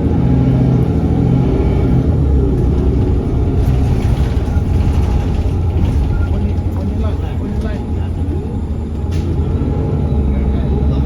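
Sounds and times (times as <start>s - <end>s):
vehicle motor rumbling: 0.0s - 11.0s.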